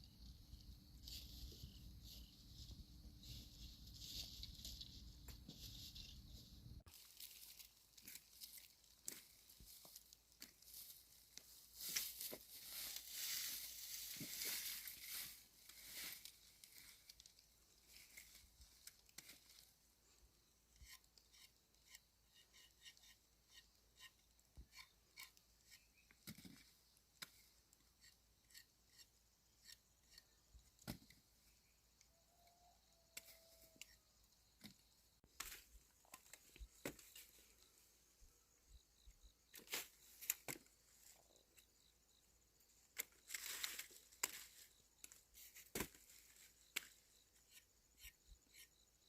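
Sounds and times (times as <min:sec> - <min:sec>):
rustling: 0:01.0 - 0:17.2.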